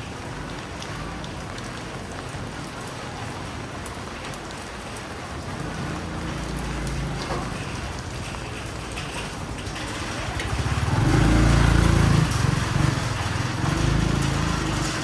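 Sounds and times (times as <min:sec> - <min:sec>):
rain falling on street: 0:00.0 - 0:15.0
vehicle engine rumbling past: 0:05.5 - 0:15.0.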